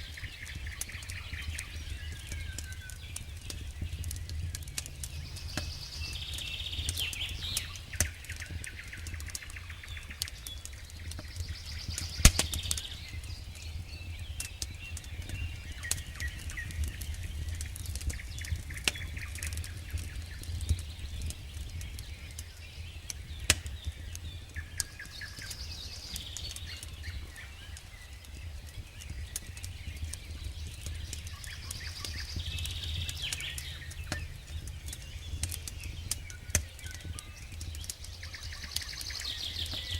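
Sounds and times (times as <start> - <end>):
campfire crackling and popping: 0.0 - 39.9
low rumble: 3.6 - 7.3.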